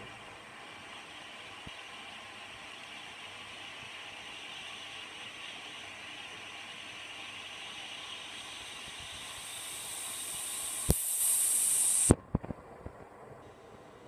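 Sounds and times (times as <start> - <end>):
water inlet valve hissing: 7.4 - 12.2
valve click: 9.2 - 12.2.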